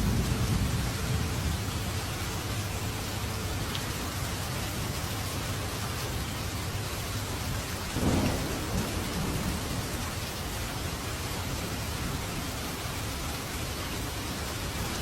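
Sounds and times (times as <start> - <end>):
thunder rumbling: 0.0 - 2.2, 7.9 - 12.9
steady rain falling: 0.0 - 15.0.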